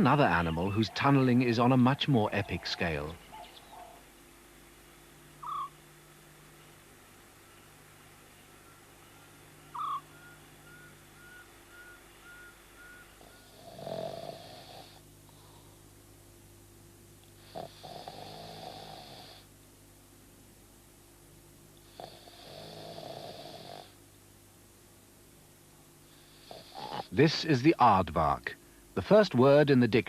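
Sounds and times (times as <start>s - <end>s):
faint peeps: 5.4s - 5.8s, 7.4s - 13.7s
animal snoring: 13.0s - 15.7s, 17.4s - 19.5s, 21.8s - 24.0s, 26.1s - 27.2s.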